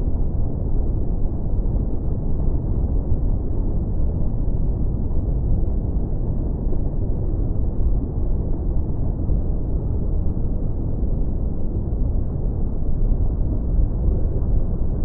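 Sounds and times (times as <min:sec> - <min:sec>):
muffled rumble of surf: 0:00.0 - 0:15.0.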